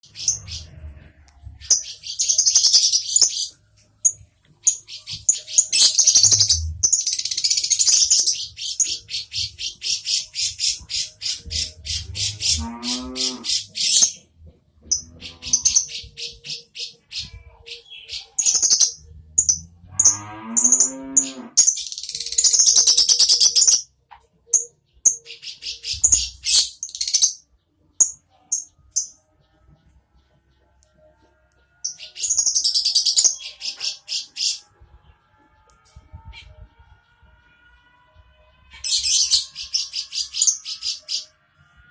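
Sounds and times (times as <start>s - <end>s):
lovebirds chirping: 0.0s - 14.2s, 14.8s - 23.9s, 24.5s - 31.1s, 31.8s - 34.6s, 38.8s - 41.3s
low moo-like bird calls: 7.9s - 14.1s, 14.8s - 21.9s.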